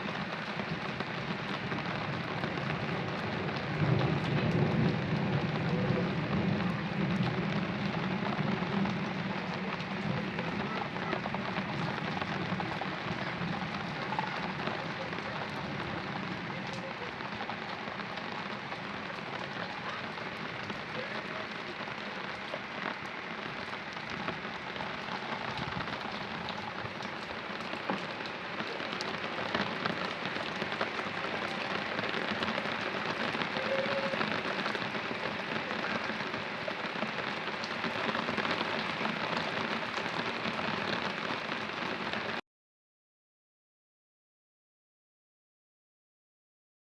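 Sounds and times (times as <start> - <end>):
heavy rain on hard surfaces: 0.0 - 42.4
low rumble of thunder: 1.0 - 21.3.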